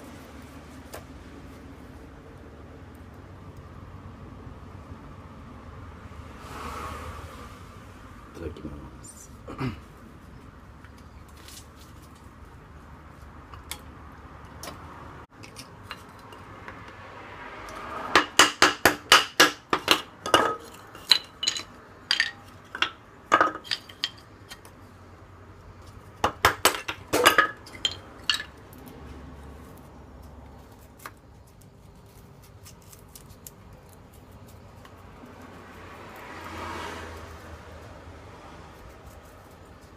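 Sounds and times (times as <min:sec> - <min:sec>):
utensils clinking on metal cookware: 0:19.1 - 0:24.3, 0:26.6 - 0:28.6.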